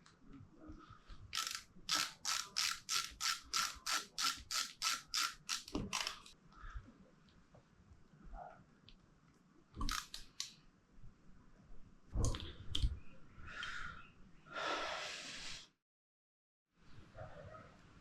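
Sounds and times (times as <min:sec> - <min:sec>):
sharp clicks of small parts: 0:01.3 - 0:06.4, 0:09.8 - 0:10.6.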